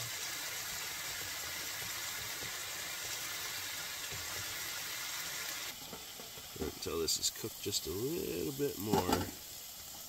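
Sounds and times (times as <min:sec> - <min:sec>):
steak and onions sizzling in a pan: 0:00.0 - 0:10.0.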